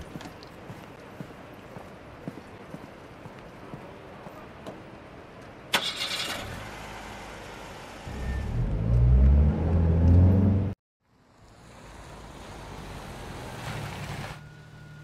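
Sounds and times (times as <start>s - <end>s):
car engine starting and running: 5.7s - 10.8s.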